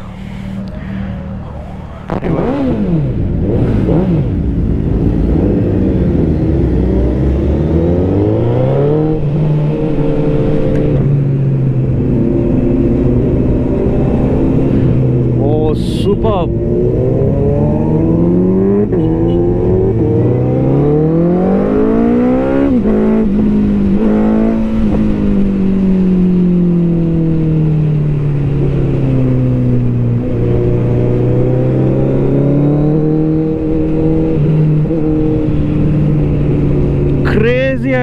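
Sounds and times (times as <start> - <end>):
superbike engines revving: 0.0 - 11.0.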